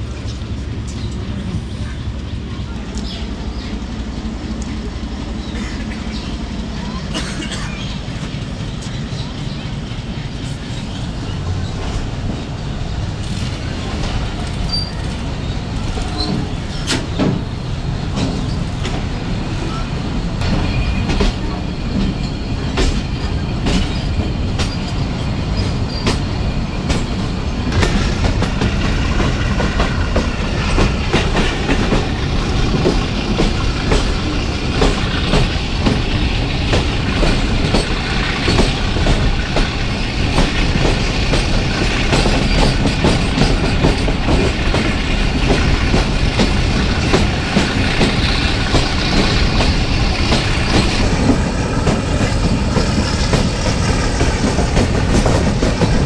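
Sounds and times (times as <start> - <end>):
train rumble: 0.0 - 56.0
train wheels clacking over rail joints: 13.1 - 19.8, 20.4 - 56.0.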